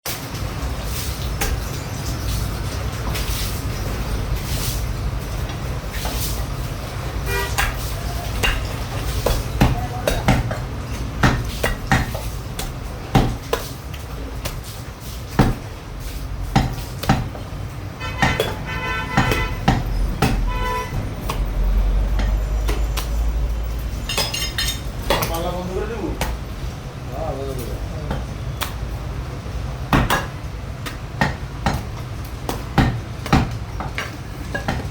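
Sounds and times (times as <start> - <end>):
low traffic rumble: 0.1 - 34.9
horn honking: 7.2 - 8.0, 17.9 - 23.8
cleaver chopping meat: 8.4 - 13.8, 15.3 - 15.7, 16.4 - 17.4, 18.2 - 21.5, 29.9 - 34.9.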